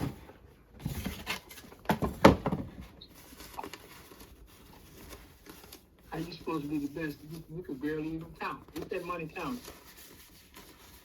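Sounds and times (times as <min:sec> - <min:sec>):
banknotes rustling: 0:03.1 - 0:11.0.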